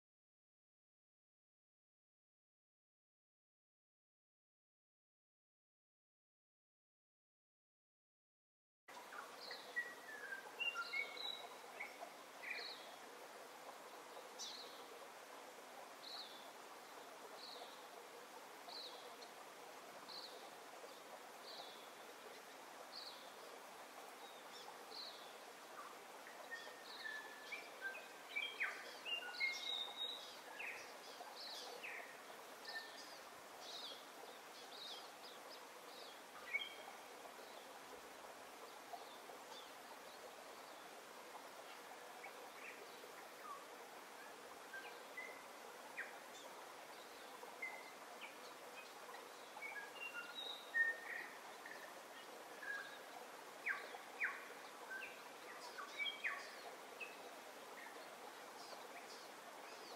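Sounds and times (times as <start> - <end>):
faint outdoor hiss: 8.9 - 59.9
lower whistled bird calls: 9.1 - 12.9, 24.3 - 34.0, 49.6 - 51.9.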